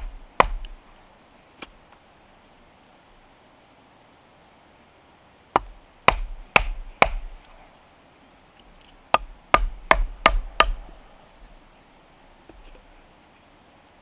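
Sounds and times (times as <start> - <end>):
hand tool striking wood: 0.0 - 0.7, 5.6 - 7.4, 9.1 - 10.9.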